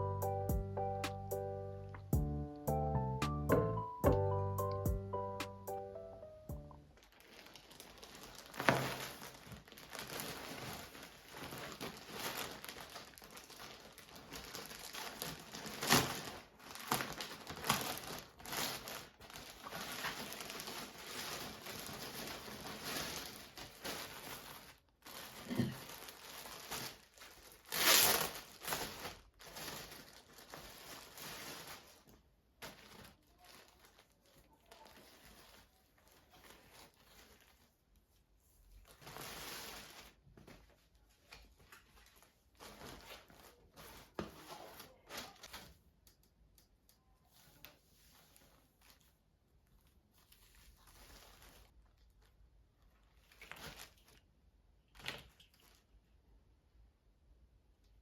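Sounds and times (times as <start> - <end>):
packaging crinkling and tearing: 6.8 - 37.8, 38.7 - 46.2, 50.2 - 56.0.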